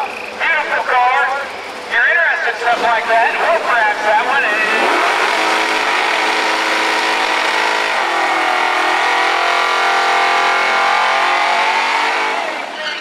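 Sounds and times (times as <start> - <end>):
engine at high revs: 2.5 - 12.9.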